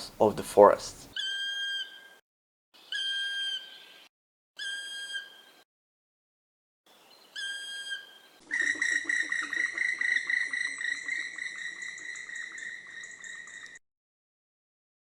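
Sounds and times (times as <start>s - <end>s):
woodpecker pulsed high call: 1.2s - 2.2s, 2.8s - 5.6s, 6.9s - 13.8s
woodpecker whistled note: 2.9s - 3.8s, 4.6s - 5.6s, 7.4s - 13.8s.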